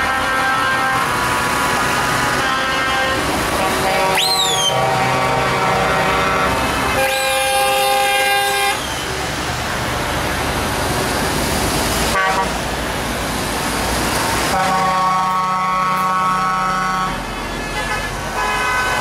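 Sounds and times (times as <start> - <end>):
truck horns honking: 0.0 - 9.5, 12.0 - 12.8, 14.3 - 19.0
traffic: 0.0 - 19.0
truck engines running: 0.0 - 19.0
rising-then-falling whistle: 4.1 - 4.8.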